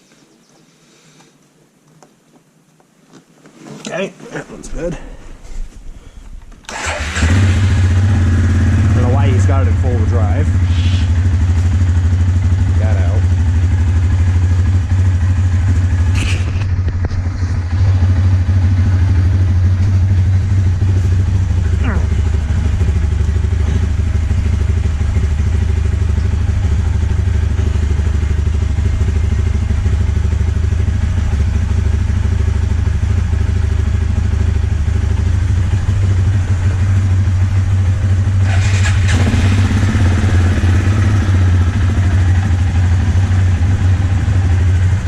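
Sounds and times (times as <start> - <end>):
atv engine idling: 5.2 - 45.0
brief sharp clatter: 16.1 - 17.3.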